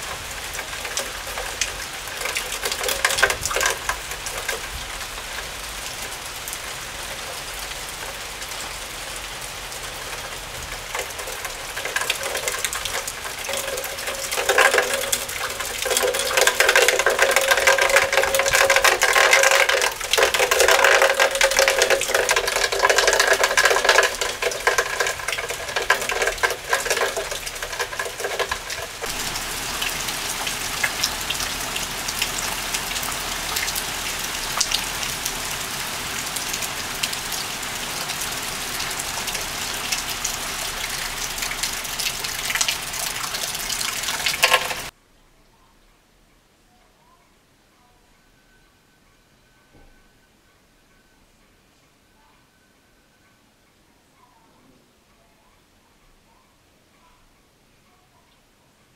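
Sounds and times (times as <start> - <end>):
heavy rain: 0.0 - 45.0.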